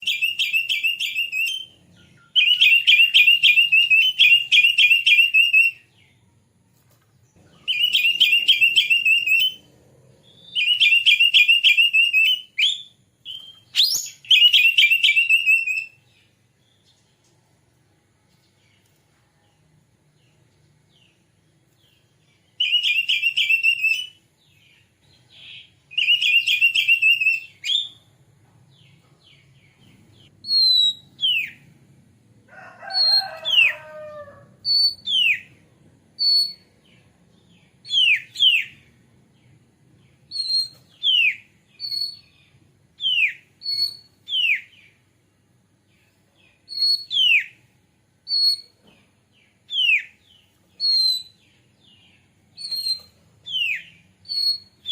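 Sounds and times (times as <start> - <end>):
bird clear whistles: 10.5 - 15.9, 30.4 - 31.5, 52.6 - 54.9.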